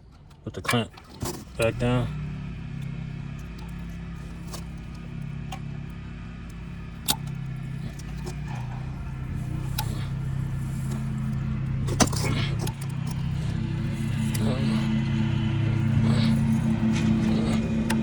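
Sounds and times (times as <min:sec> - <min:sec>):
steady low hum: 0:00.0 - 0:18.0
metal tools clinking: 0:07.0 - 0:18.0.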